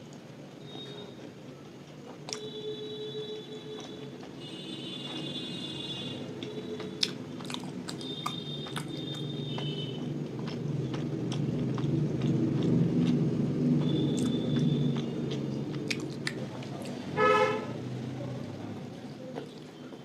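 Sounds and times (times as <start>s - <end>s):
chewing and mouth sounds: 0.8s - 2.6s, 3.5s - 5.3s, 6.2s - 17.1s, 19.1s - 20.0s
vehicle horn toot: 2.4s - 6.9s, 8.0s - 10.0s, 17.2s - 17.8s.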